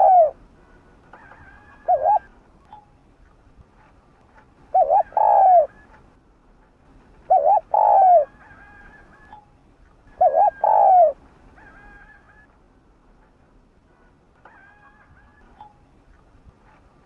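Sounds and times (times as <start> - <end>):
dove cooing: 0.0 - 0.4, 1.1 - 2.4, 4.7 - 5.9, 7.2 - 9.4, 10.1 - 12.5.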